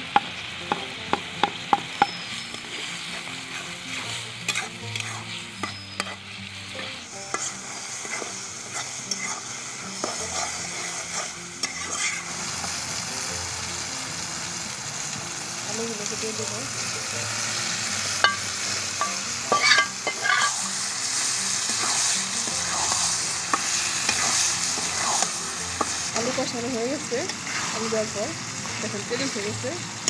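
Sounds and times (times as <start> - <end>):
food sizzling in hot oil: 0.0 - 30.0
metal spatula scraping pan: 2.5 - 6.2, 6.8 - 12.2, 19.0 - 20.7, 27.2 - 28.0.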